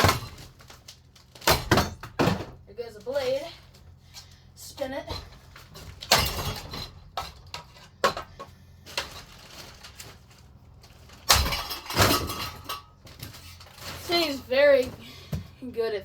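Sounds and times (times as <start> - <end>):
ceiling fan being smashed: 0.0 - 2.6, 5.1 - 14.2.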